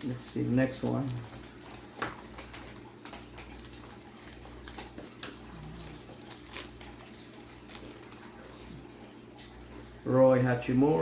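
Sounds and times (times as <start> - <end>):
card wrapper crinkling: 0.0 - 8.7.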